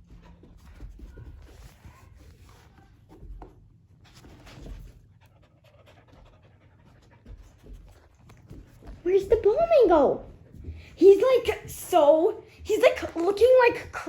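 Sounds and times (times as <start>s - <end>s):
dog panting softly: 0.0s - 11.0s.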